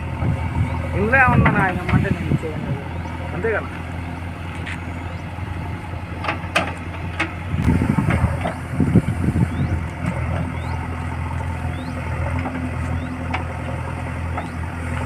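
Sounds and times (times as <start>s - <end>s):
diesel engine idling: 0.0s - 15.0s
sharp clicks and knocks: 6.2s - 8.6s.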